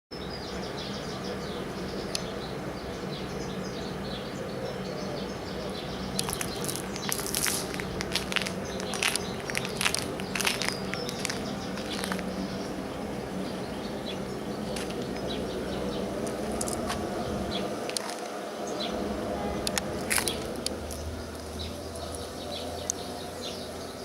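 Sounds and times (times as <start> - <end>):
small birds chirping: 0.2 - 24.0
steady low hum: 0.2 - 24.0
sharp crackling clicks: 6.2 - 12.3, 16.2 - 17.0, 17.8 - 18.4, 19.6 - 22.2.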